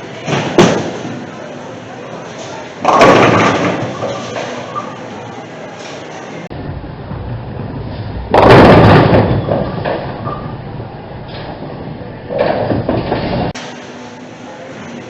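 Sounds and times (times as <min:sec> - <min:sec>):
bowling pins crashing: 0:02.8 - 0:04.9, 0:08.3 - 0:10.4.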